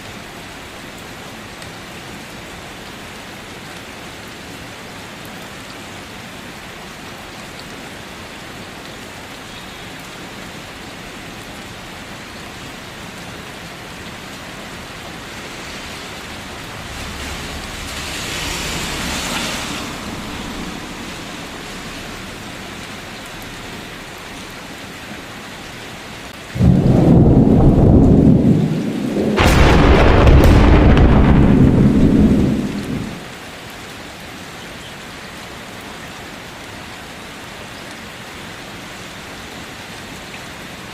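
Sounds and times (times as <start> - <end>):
steady rain falling: 0.0 - 40.9
rumble of thunder: 15.7 - 22.7, 26.6 - 33.3
loud thunderclap: 15.8 - 22.4, 26.6 - 33.3.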